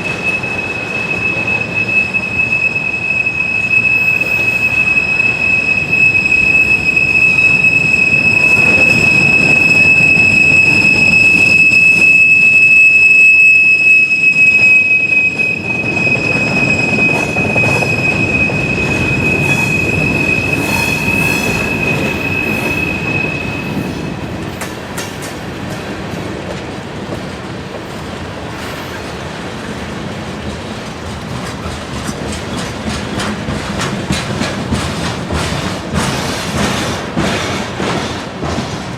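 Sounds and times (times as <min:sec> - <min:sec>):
train wheels squealing: 0:00.0 - 0:25.5, 0:27.9 - 0:29.3
train wheels clattering: 0:14.2 - 0:38.9.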